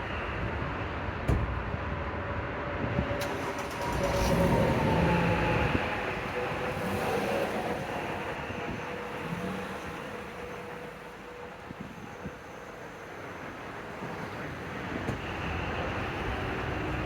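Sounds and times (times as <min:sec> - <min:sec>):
car engine fast idle: 0:03.2 - 0:06.5.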